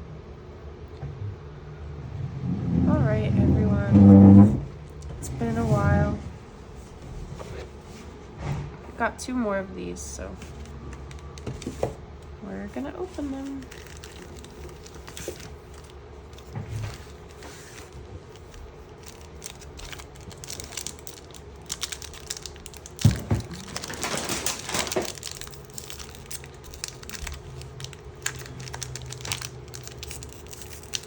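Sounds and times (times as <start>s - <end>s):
plastic wrapping crinkling: 10.3s - 31.0s.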